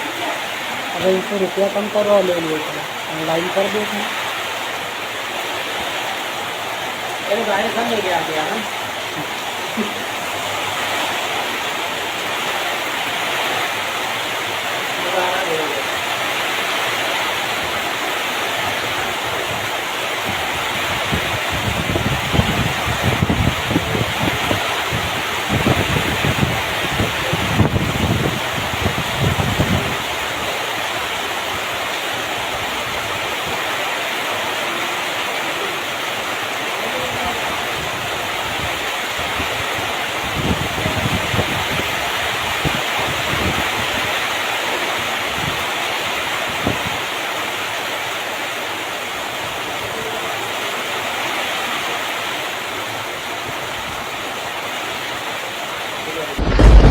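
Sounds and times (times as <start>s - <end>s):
wind rumble on microphone: 18.6s - 30.6s, 37.1s - 44.2s, 46.4s - 47.1s, 56.2s - 56.9s.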